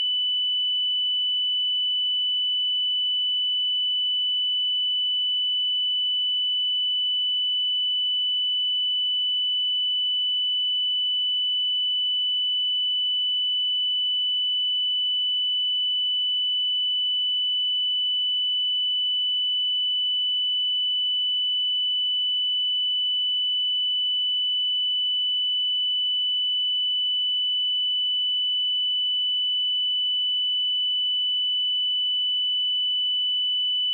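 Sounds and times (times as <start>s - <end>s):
high-pitched sine test tone: 0.0s - 0.6s, 32.6s - 33.9s.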